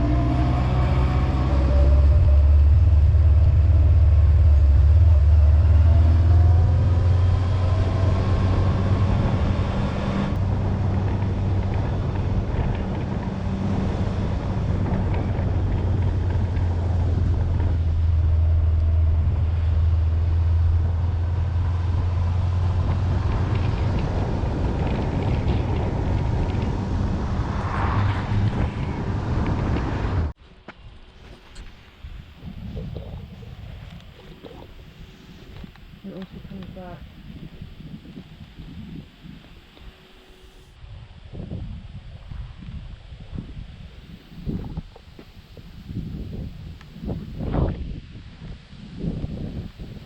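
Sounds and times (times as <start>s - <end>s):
motorcycle engine running: 0.0s - 27.6s
wind noise: 0.0s - 50.0s.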